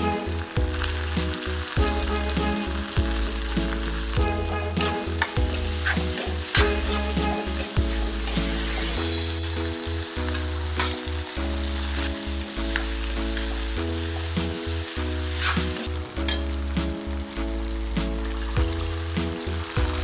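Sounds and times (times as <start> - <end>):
background music with bass line: 0.0 - 20.0
vegetables sizzling in a pan: 0.0 - 20.0
steel spatula scraping a pan: 4.4 - 9.7, 10.3 - 11.1, 12.7 - 16.5.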